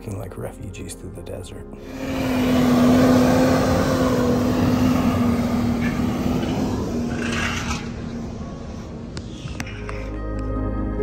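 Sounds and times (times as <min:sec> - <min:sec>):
engine drone: 0:01.7 - 0:11.0
rushing noise: 0:01.8 - 0:09.8.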